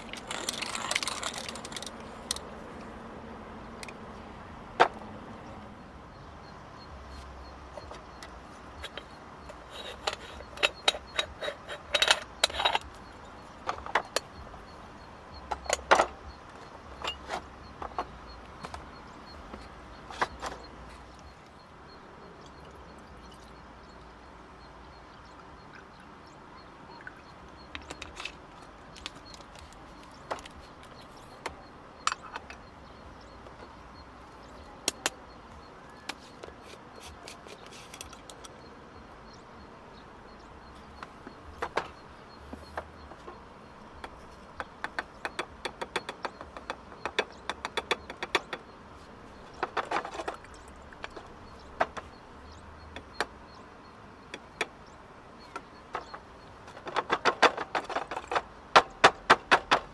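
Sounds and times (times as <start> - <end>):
faint background noise: 0.0 - 59.9
sharp clicks and light knocks: 7.2 - 21.6, 27.0 - 38.7, 40.3 - 53.6, 54.2 - 59.9.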